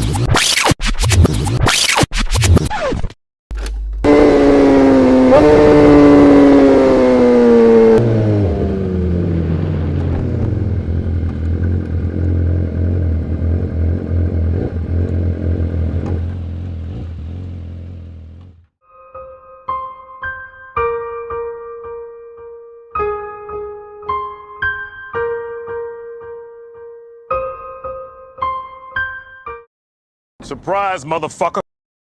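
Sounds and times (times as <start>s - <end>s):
motorcycle engine revving: 3.6s - 18.7s.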